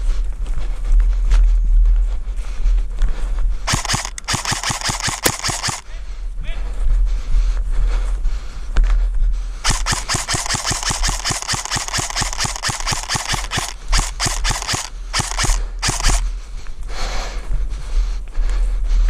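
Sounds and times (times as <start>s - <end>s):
airsoft gun firing full auto: 3.7s - 5.8s, 9.6s - 16.3s.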